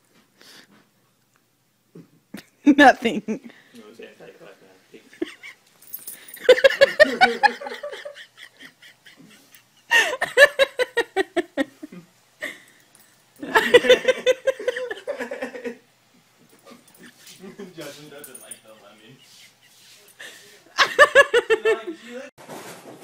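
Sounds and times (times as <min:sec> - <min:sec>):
person laughing hard: 0:06.4 - 0:12.6, 0:13.4 - 0:15.8, 0:20.2 - 0:22.0.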